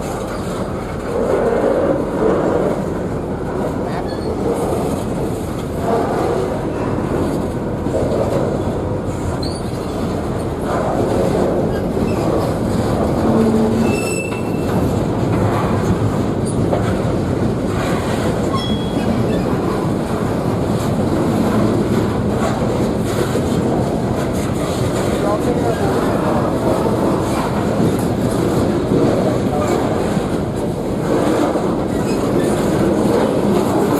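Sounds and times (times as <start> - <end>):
freight train wheels rumbling: 0.0 - 33.9
train wheel squeals: 9.4 - 10.1, 11.7 - 12.5, 13.2 - 14.9, 18.4 - 19.7.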